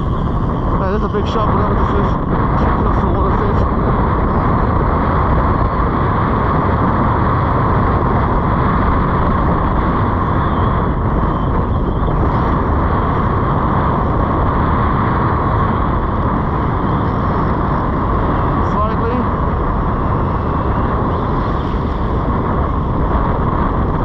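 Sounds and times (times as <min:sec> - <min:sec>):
beach surf: 0:00.0 - 0:24.0
wind buffeting microphone: 0:00.0 - 0:24.0.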